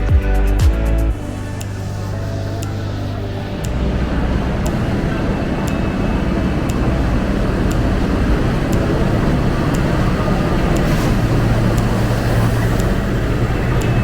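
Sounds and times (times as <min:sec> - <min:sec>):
passenger train rumbling: 0:01.1 - 0:14.0
faint high tick: 0:05.6 - 0:14.0.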